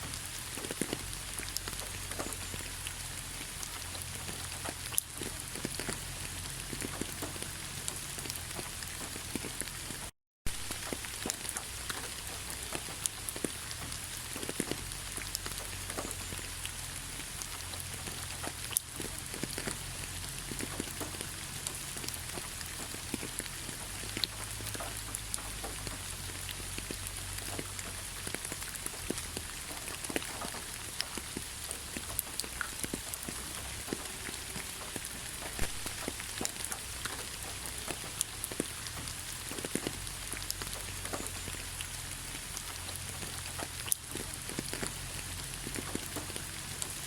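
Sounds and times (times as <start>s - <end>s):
heavy rain hiss: 0.0s - 47.0s
raindrops ticking: 0.0s - 47.0s.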